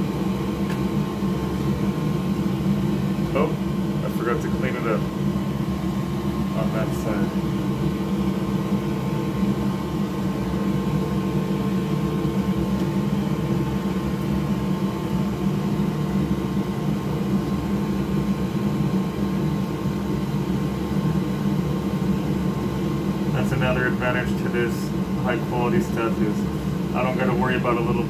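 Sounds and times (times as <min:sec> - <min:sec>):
fan machine humming: 0:00.0 - 0:28.0.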